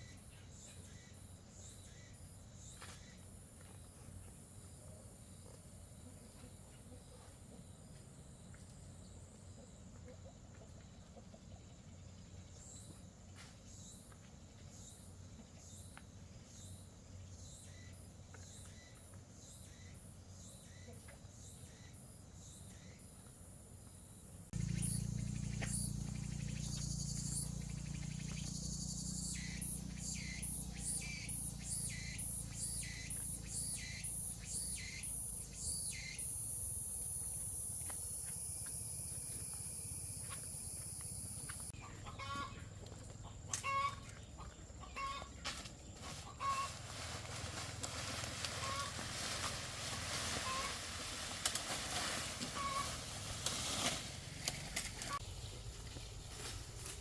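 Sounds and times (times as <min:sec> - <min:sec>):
rhythmic chirping: 0:24.5 - 0:37.4
high insect buzz: 0:24.5 - 0:41.7
chickens clucking: 0:24.6 - 0:34.7, 0:41.4 - 0:45.4, 0:46.1 - 0:46.9, 0:47.7 - 0:49.0, 0:50.3 - 0:50.9, 0:52.4 - 0:53.1.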